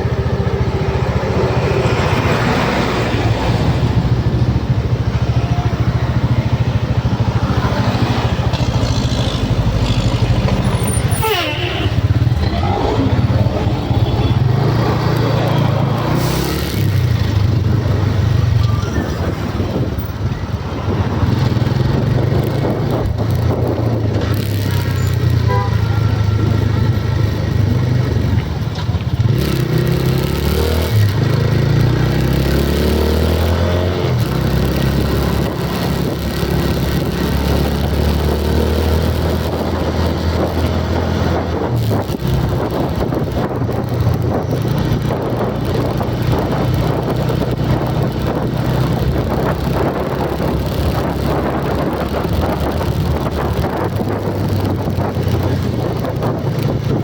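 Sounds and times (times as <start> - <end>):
vehicle engine running: 0.0 - 30.3.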